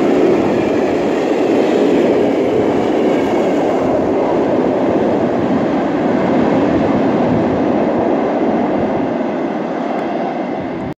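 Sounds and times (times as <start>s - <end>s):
train wheels rumbling on rails: 0.0s - 10.9s.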